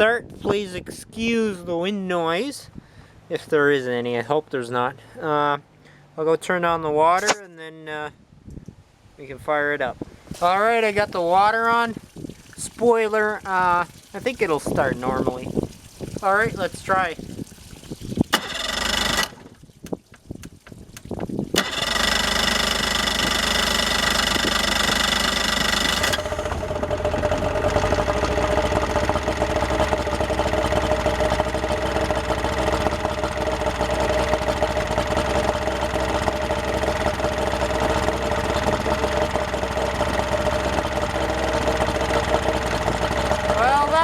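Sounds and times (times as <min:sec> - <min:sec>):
outboard motor starting and idling: 0:10.3 - 0:44.0.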